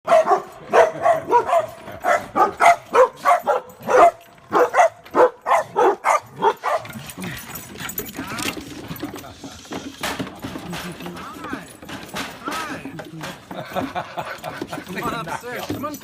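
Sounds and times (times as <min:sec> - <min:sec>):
dogs barking: 0:00.1 - 0:08.2, 0:13.6 - 0:15.9.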